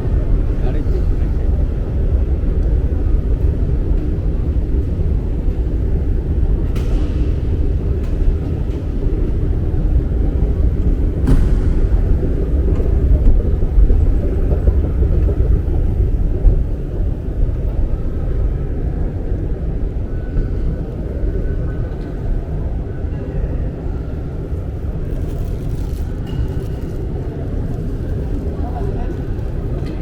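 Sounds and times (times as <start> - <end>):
loud low rumble: 0.0 - 23.0.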